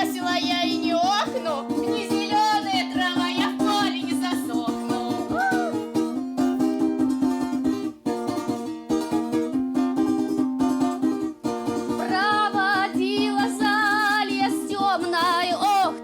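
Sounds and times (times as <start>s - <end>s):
women singing: 0.0s - 5.6s, 12.0s - 16.0s
plucked string instrument: 0.0s - 16.0s.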